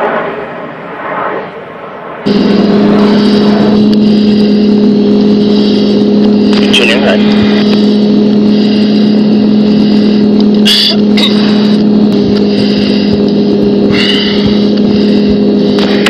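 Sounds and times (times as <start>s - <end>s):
jet cockpit drone: 0.0s - 16.0s
short hissing bursts: 2.3s - 11.8s.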